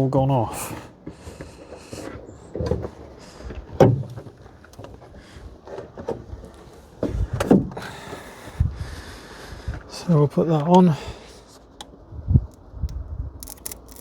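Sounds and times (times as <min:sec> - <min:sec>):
car door knocks and clunks: 0:03.8 - 0:04.4.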